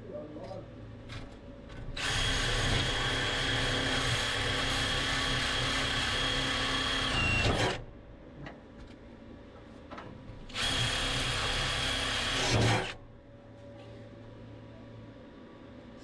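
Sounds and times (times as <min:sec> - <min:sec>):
power tool whirring: 0:02.0 - 0:07.9, 0:10.5 - 0:13.0.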